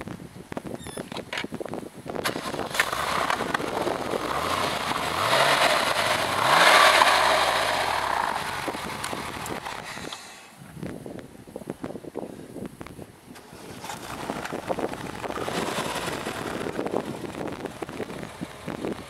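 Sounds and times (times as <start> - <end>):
car engine revving: 2.3 - 10.1, 13.4 - 19.0.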